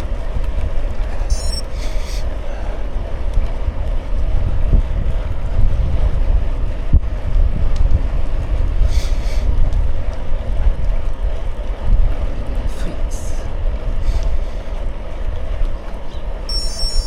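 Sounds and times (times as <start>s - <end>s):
wind buffeting microphone: 0.0s - 17.0s
brief high-pitched sound: 1.3s - 1.6s, 16.5s - 17.0s.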